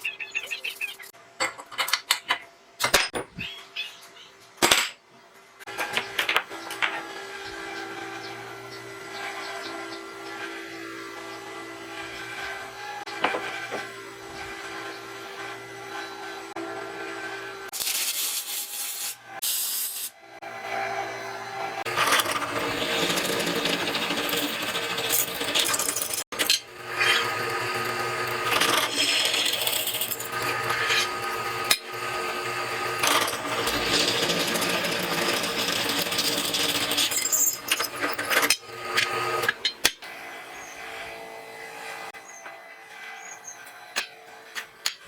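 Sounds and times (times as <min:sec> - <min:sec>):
power tool grinding: 0:05.6 - 0:17.8, 0:20.4 - 0:45.0.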